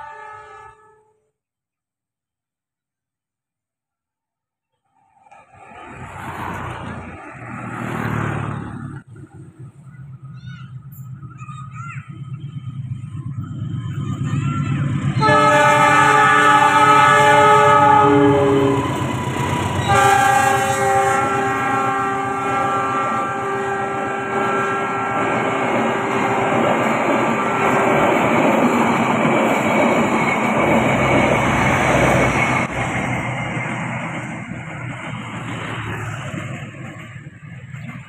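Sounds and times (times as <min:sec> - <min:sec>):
train horn blasts: 0:00.0 - 0:01.3, 0:15.2 - 0:28.7
train wheels rumbling and clattering: 0:05.3 - 0:22.3, 0:22.9 - 0:38.0.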